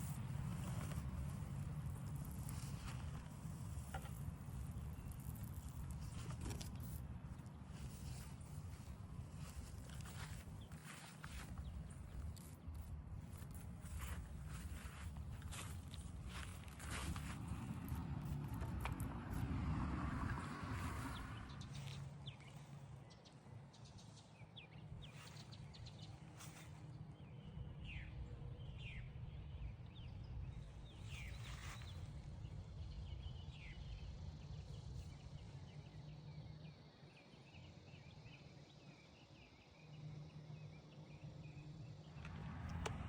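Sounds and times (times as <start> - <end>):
steady low rumble: 0.0 - 23.1.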